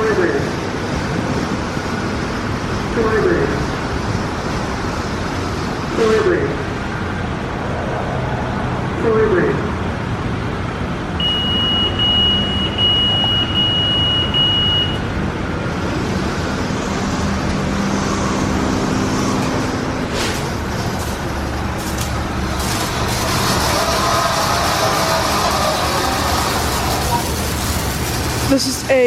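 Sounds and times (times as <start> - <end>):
car wash machinery running: 0.0 - 29.0
high-pitched beep: 11.2 - 15.0.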